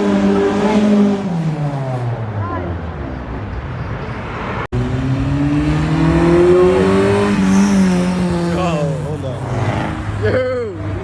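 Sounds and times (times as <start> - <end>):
car engine accelerating past: 4.8 - 10.1.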